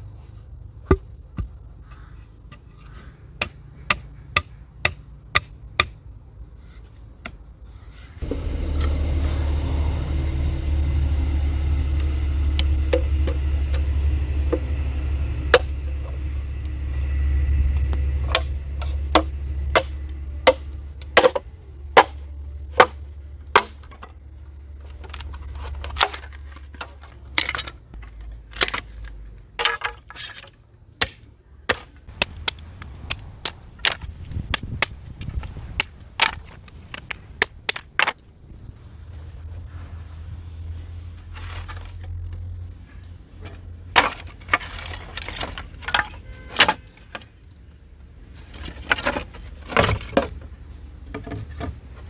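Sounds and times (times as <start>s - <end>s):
wood being chopped: 3.4s - 6.0s, 18.3s - 21.4s, 22.0s - 22.2s, 23.6s - 24.1s, 31.0s - 38.2s
low rumble: 8.2s - 28.1s.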